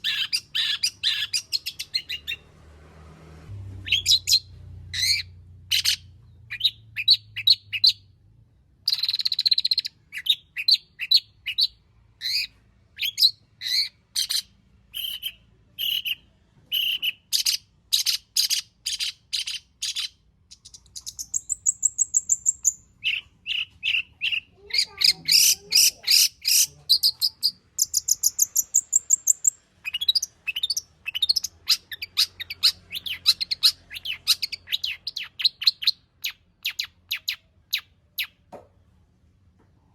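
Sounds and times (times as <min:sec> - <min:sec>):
bird singing varied song: 0:00.0 - 0:02.5, 0:03.8 - 0:38.5.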